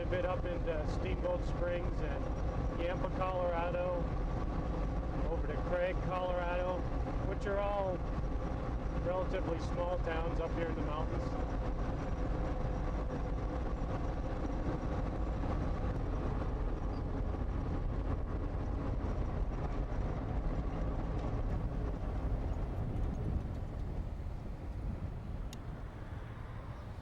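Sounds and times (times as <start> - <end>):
diesel truck engine running: 21.5 - 27.0.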